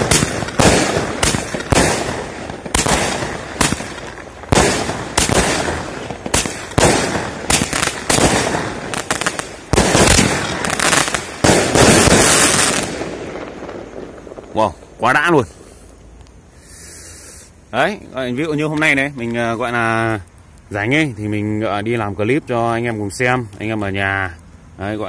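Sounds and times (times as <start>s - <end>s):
firework bangs: 0.0s - 15.8s.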